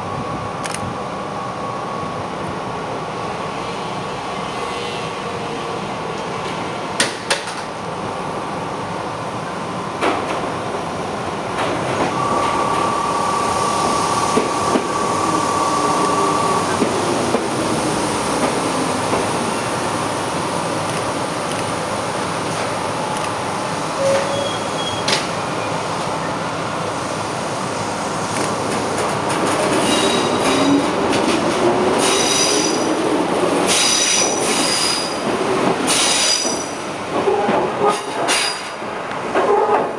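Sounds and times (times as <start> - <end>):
train running rumble: 6.1 - 39.9
steady high-pitched tone: 11.9 - 17.4
train wheels squealing: 12.0 - 17.2, 24.0 - 25.8, 29.7 - 31.0, 32.0 - 33.0, 33.7 - 35.3, 35.9 - 36.8, 37.8 - 38.8.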